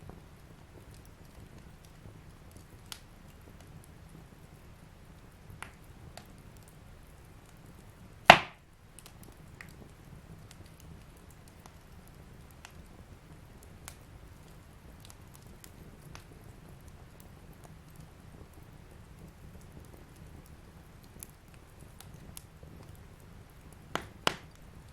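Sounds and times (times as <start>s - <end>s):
wood fire crackling: 0.0s - 24.9s
loud pop from fire: 8.2s - 8.6s, 23.9s - 24.6s.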